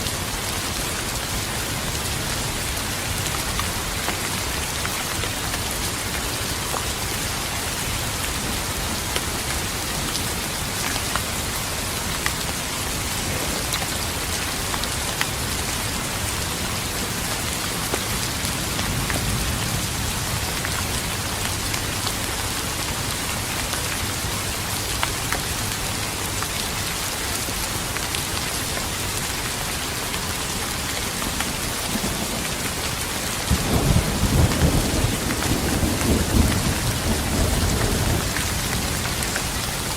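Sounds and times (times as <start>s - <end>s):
rain pattering: 0.0s - 39.9s
thunder rumble: 31.4s - 39.7s.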